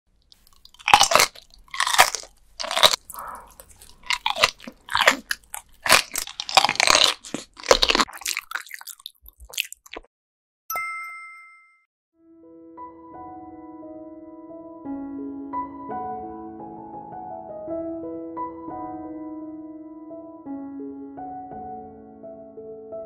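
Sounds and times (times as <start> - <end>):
crunchy chewing of raw fish: 0.3 - 10.1.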